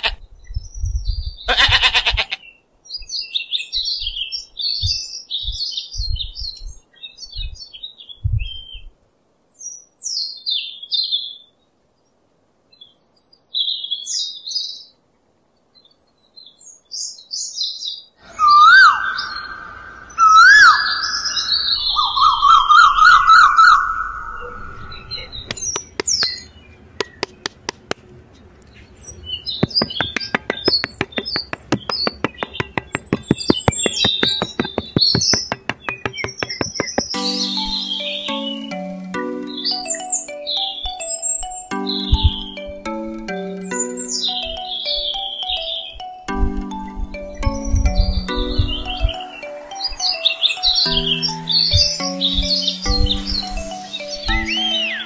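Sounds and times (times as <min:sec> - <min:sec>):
small birds chirping: 0:24.4 - 0:55.0
sharp clicks: 0:25.5 - 0:26.4, 0:27.0 - 0:28.1, 0:29.6 - 0:37.7.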